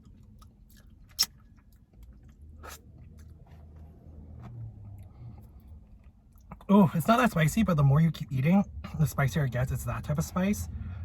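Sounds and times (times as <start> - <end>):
mouth clicks and smacks: 0.0 - 3.4
person chewing: 0.0 - 3.9.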